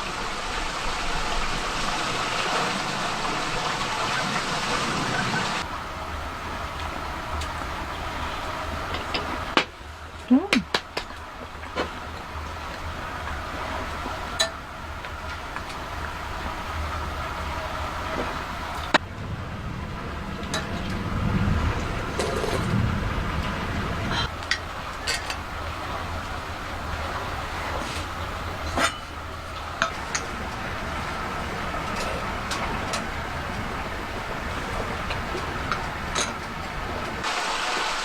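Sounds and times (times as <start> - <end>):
steady low rumble: 11.2 - 37.3.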